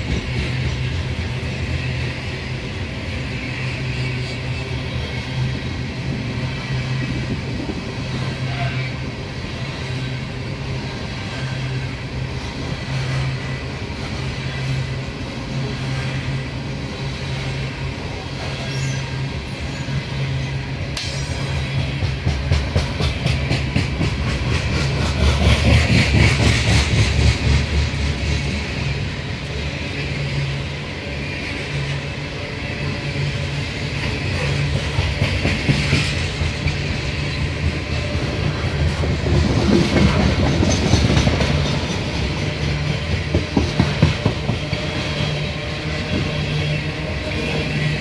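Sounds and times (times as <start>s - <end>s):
steel wheels rumbling on rail: 0.0s - 48.0s
wheels clacking over rail joints: 20.9s - 29.7s, 33.4s - 48.0s.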